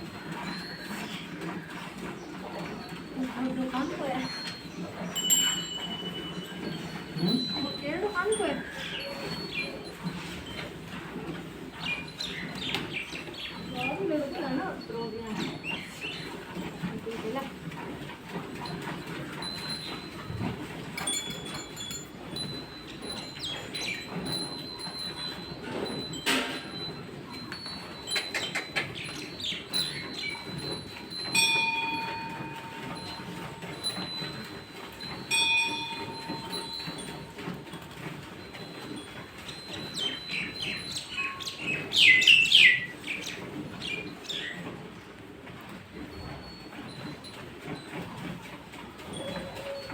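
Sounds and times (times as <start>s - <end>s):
bird chirping: 39.4s - 44.6s.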